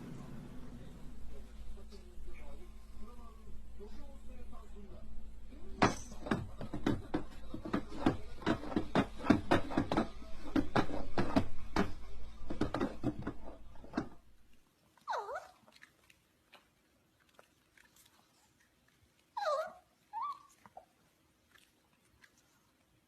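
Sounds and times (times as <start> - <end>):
sharp clicks and knocks: 5.8 - 14.3.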